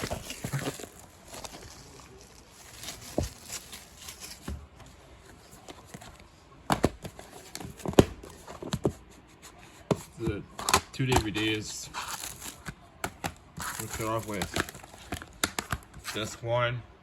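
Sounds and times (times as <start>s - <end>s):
plastic crinkling: 0.0s - 4.8s, 11.2s - 16.3s.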